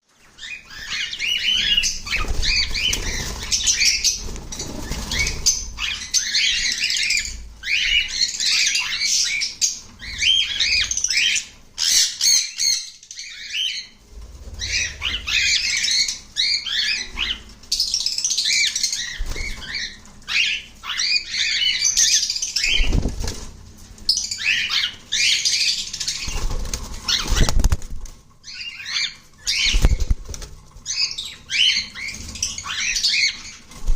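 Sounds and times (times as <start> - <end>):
cockatiels chirping: 0.2 - 23.0, 24.0 - 27.8, 28.4 - 30.2, 30.8 - 33.7
wings flapping: 1.7 - 6.3, 22.6 - 24.8, 25.9 - 28.4, 29.4 - 33.9.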